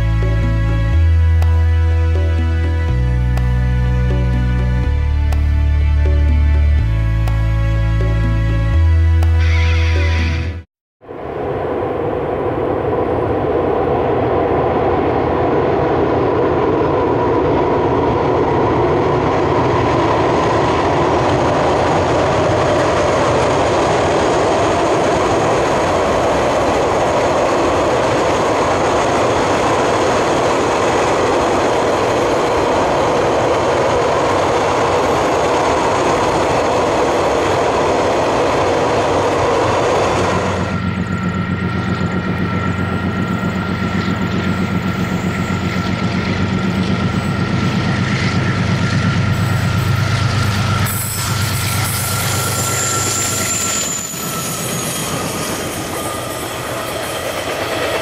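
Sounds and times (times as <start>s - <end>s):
steel wheels on rail: 15.4s - 58.0s.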